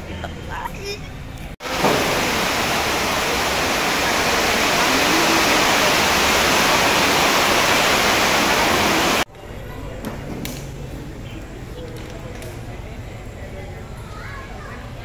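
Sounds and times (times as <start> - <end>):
heavy rain rushing: 1.6 - 9.3.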